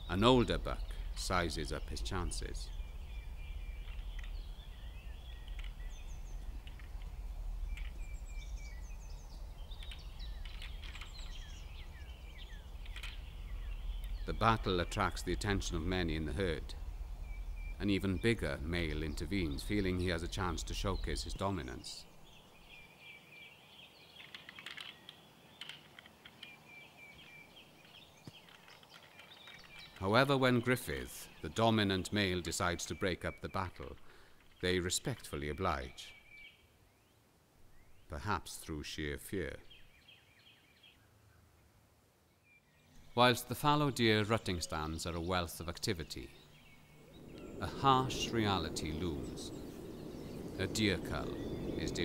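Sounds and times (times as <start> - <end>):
low outdoor rumble: 0.0 - 22.4, 43.0 - 52.0
small birds chirping: 0.0 - 52.0
deer antlers clashing: 24.2 - 26.5.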